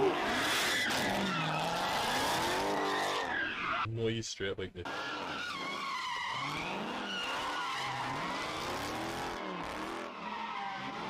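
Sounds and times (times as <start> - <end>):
car engine revving: 4.9 - 11.0.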